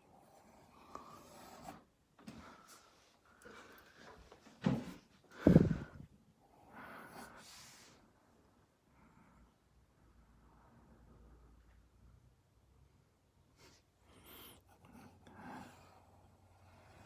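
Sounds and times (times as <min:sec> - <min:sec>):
marker rubbing on paper: 0:00.4 - 0:01.8, 0:13.6 - 0:17.0.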